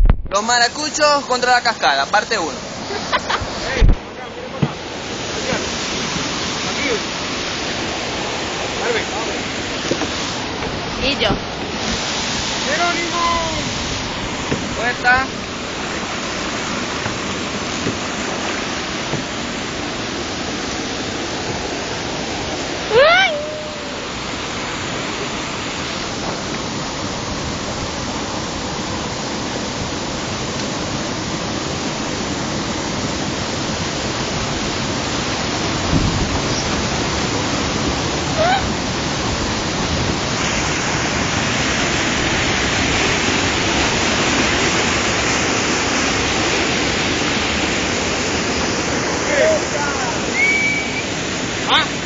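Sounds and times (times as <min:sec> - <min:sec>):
waterfall rushing: 0:00.0 - 0:52.0
high rising yelp: 0:22.8 - 0:25.3.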